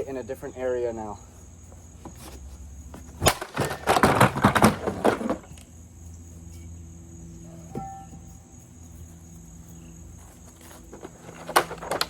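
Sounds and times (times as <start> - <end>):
crickets chirping: 0.0 - 12.0
vacuum parts clattering: 3.0 - 5.6, 10.4 - 12.0.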